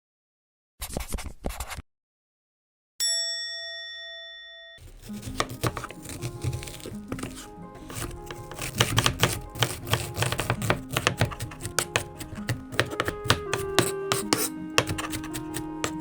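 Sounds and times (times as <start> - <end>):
background music: 4.8 - 16.0
knife chopping on cutting board: 4.8 - 16.0.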